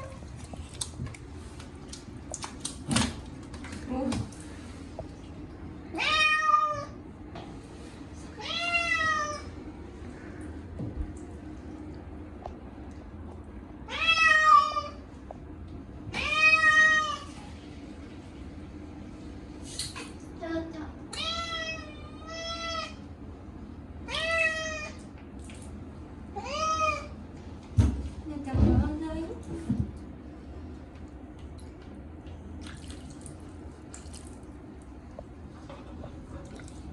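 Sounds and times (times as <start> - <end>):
cat meowing loudly: 6.0 - 7.0.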